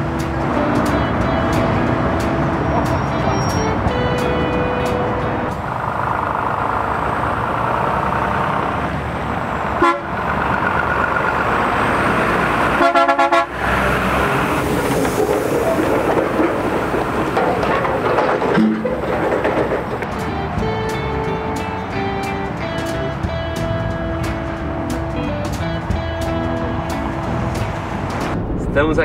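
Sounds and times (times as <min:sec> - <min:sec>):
heavy truck running: 0:00.0 - 0:29.0
road noise: 0:00.0 - 0:29.0
vehicle horn: 0:09.8 - 0:10.2, 0:12.8 - 0:13.8.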